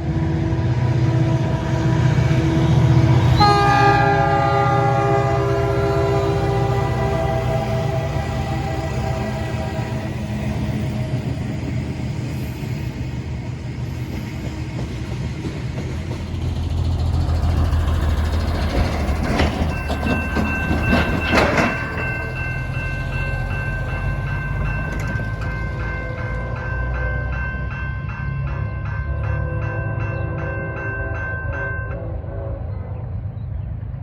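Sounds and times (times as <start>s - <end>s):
locomotive horn: 0.0s - 10.5s, 29.8s - 33.3s
freight train rumble and rattle: 0.0s - 34.0s.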